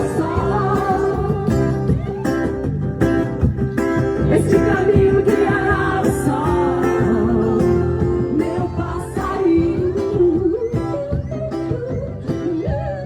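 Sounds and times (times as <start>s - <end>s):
strummed acoustic guitar: 0.0s - 13.0s
person singing: 4.2s - 10.8s.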